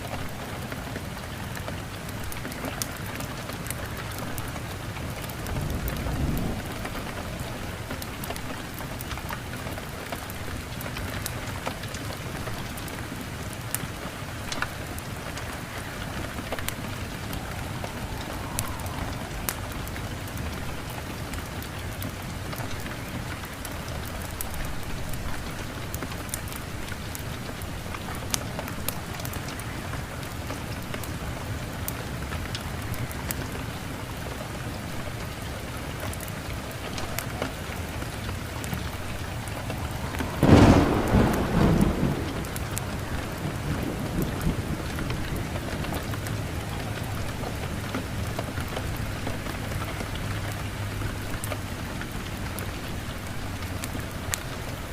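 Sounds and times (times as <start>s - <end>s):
fireplace fire crackling: 0.0s - 54.9s
steady rain: 0.0s - 54.9s
thunderclap rumbling: 0.5s - 9.1s, 13.8s - 22.3s, 36.7s - 49.4s.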